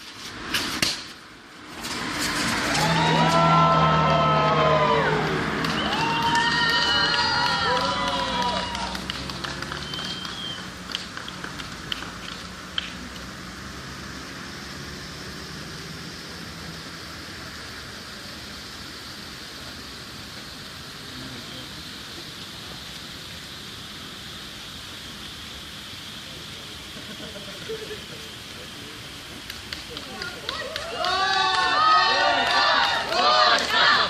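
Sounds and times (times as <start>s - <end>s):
fireworks popping: 0.0s - 3.5s, 5.4s - 13.6s, 16.2s - 31.8s
fireworks crackling hiss: 0.0s - 34.0s.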